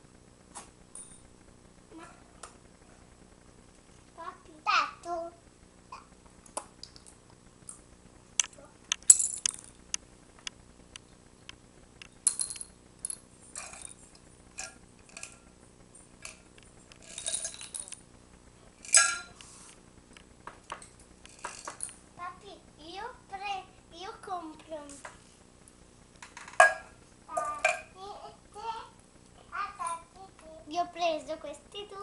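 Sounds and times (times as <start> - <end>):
small hard objects clicking: 8.4 - 10.6.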